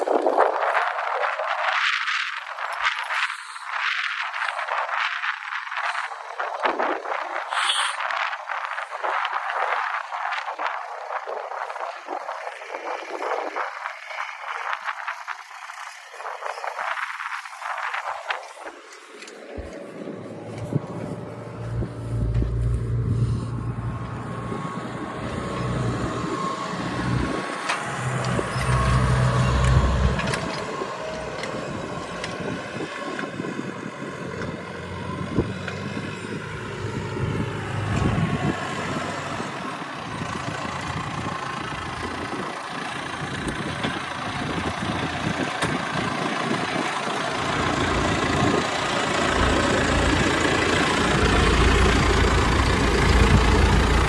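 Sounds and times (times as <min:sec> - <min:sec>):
wind buffeting microphone: 0:00.0 - 0:54.0
vehicle engine running: 0:19.2 - 0:54.0.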